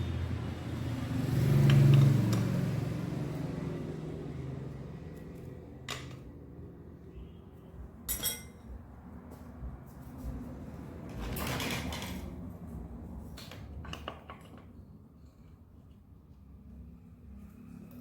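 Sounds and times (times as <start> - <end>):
metal tools clinking: 8.1 - 8.6
sharp ringing clink: 8.1 - 8.6.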